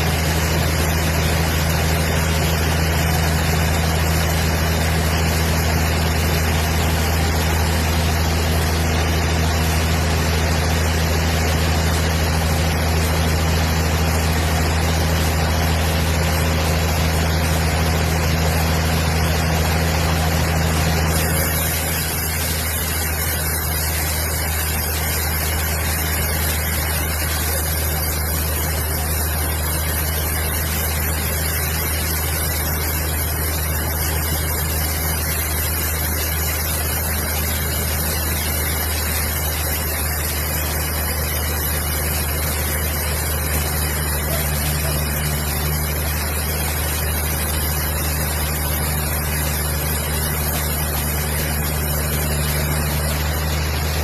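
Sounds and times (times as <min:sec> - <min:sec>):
large engine humming: 0:42.0 - 0:54.0.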